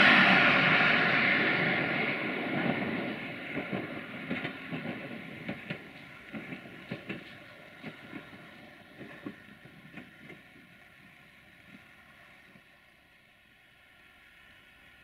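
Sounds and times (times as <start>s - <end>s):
train rushing past: 0.0s - 15.0s
wheels clicking over rail joints: 2.2s - 13.0s.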